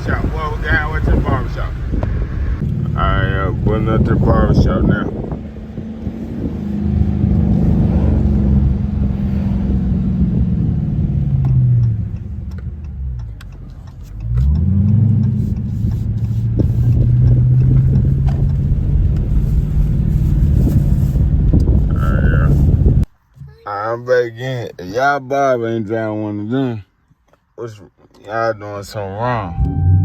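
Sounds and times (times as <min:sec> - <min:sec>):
car exhaust revving: 0:00.0 - 0:23.1, 0:29.5 - 0:30.0.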